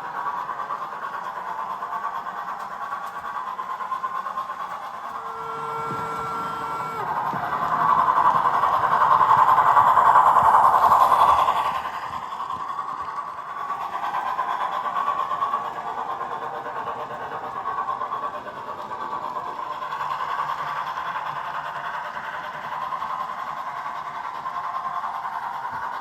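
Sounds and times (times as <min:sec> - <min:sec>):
model train running rattle: 0:00.0 - 0:26.0.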